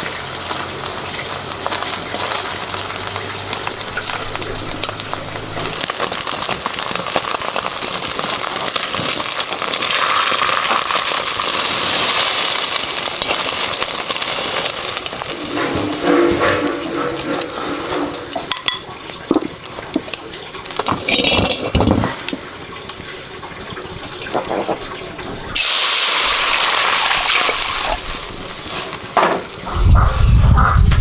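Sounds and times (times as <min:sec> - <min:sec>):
water gushing: 0:00.0 - 0:30.6
knocks and clatter: 0:20.8 - 0:22.5
low rumble: 0:29.6 - 0:31.0.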